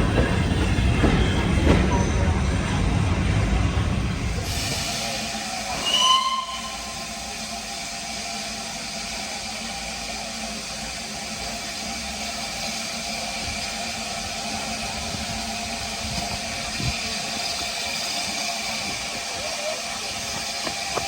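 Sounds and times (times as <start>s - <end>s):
steam locomotive hissing: 0.0s - 21.0s
short high whistle: 5.8s - 7.1s.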